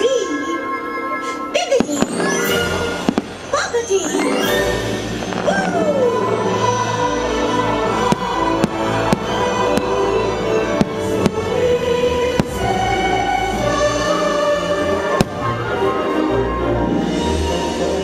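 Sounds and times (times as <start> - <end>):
firework bangs: 1.8 - 5.9, 8.0 - 11.7, 12.3 - 13.0
choral music over loudspeakers: 4.2 - 18.0.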